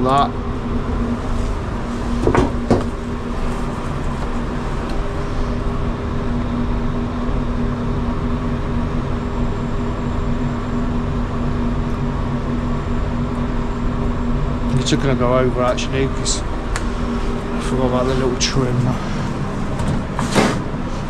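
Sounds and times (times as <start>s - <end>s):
machine hum: 0.0s - 21.0s
sharp knocks: 2.2s - 3.0s.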